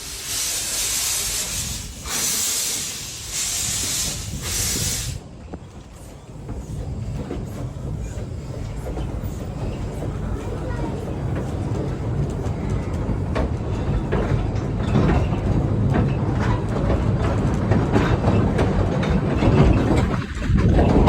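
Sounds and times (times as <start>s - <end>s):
steam locomotive hissing bursts: 0.0s - 5.2s.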